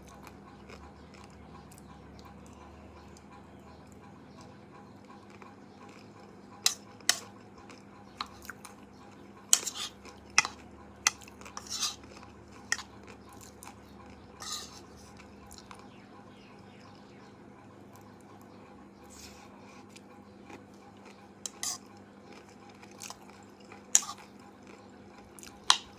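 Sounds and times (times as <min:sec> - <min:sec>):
utensils clinking against dishes: 0:06.6 - 0:07.3, 0:09.5 - 0:12.9, 0:14.4 - 0:15.1, 0:21.5 - 0:21.9, 0:24.0 - 0:24.3, 0:25.5 - 0:25.9.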